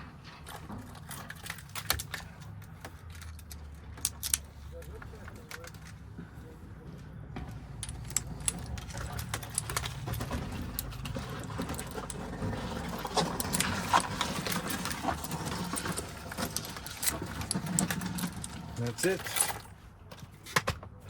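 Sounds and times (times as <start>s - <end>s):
metal lock parts clicking: 0.4s - 6.0s, 7.8s - 19.8s.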